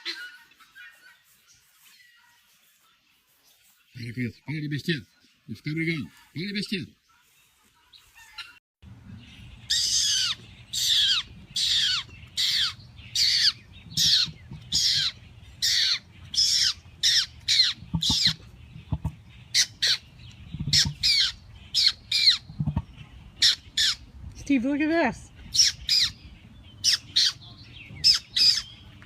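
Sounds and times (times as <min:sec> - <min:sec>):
bird cawing: 0:09.6 - 0:18.5.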